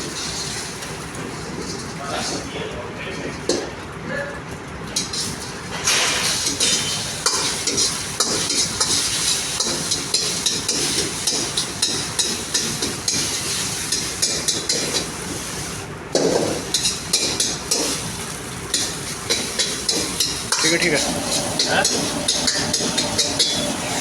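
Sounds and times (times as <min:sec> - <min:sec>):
food sizzling in a pan: 0:05.1 - 0:24.0.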